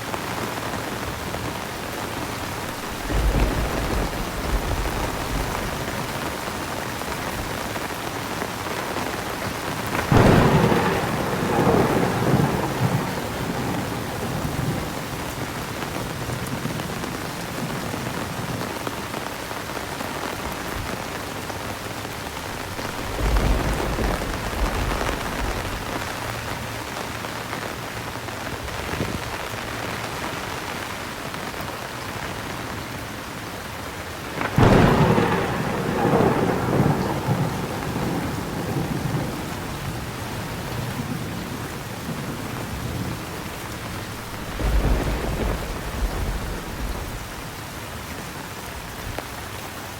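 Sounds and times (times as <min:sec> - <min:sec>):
heavy rain: 0:00.0 - 0:49.9
thunder cracks and rumbles: 0:02.2 - 0:07.7, 0:09.2 - 0:18.7, 0:22.3 - 0:26.5, 0:34.4 - 0:47.6.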